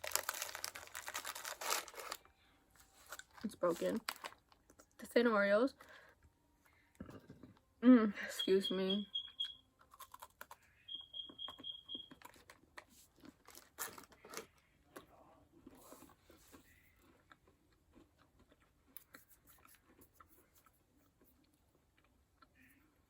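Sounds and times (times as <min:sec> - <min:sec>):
cookie crunching and chewing: 0:00.0 - 0:02.3, 0:03.0 - 0:05.0, 0:09.4 - 0:23.0
quick high beeps: 0:08.4 - 0:09.6, 0:10.9 - 0:12.1.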